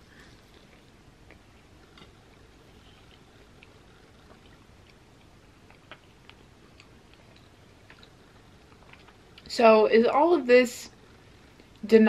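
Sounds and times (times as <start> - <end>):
mouth chewing: 0.2 - 9.5.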